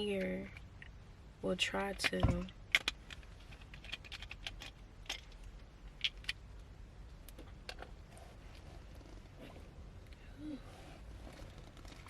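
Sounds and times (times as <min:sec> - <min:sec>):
low steady rumble: 0:00.0 - 0:12.0
small objects clicking and tapping: 0:02.0 - 0:06.4.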